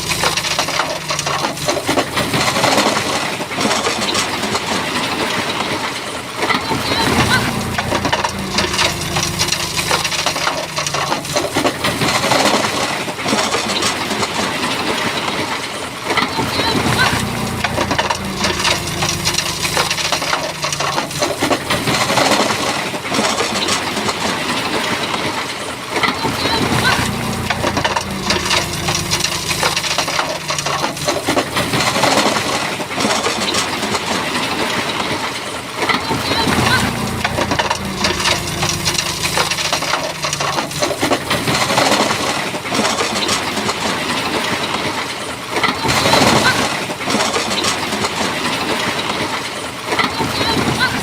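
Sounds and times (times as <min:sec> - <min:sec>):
bulldozer diesel engine running: 0:00.0 - 0:51.0
stones clattering and grinding: 0:36.8 - 0:50.2.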